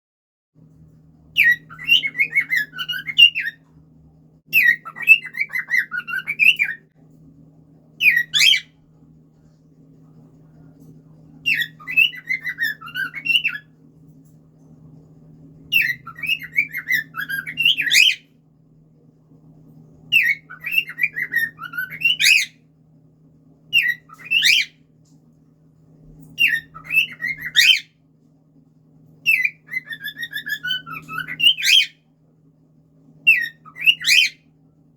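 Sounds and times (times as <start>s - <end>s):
faint low hum: 0.6s - 34.9s
cockatiel whistling: 1.4s - 3.6s, 4.6s - 6.8s, 8.0s - 8.7s, 11.4s - 13.7s, 15.7s - 18.2s, 20.1s - 22.6s, 23.7s - 24.8s, 26.4s - 27.9s, 29.3s - 32.0s, 33.3s - 34.4s.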